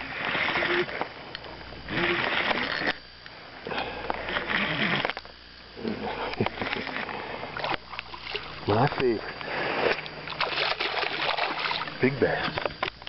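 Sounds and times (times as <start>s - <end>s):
person breathing heavily: 3.6s - 4.3s, 9.3s - 10.0s.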